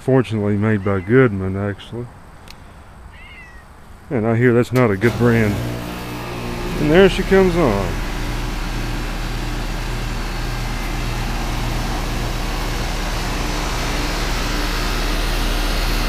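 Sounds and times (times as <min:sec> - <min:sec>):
air conditioner unit humming: 0:03.9 - 0:16.0.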